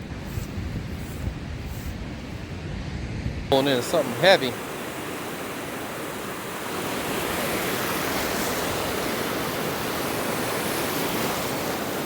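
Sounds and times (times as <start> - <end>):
ocean surf breaking on beach: 3.5 - 12.0.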